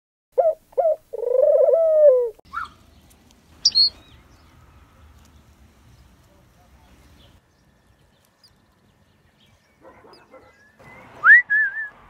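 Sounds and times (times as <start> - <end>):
bird calls: 0.4 - 4.6, 5.2 - 11.3
high bird chirp: 2.5 - 4.6.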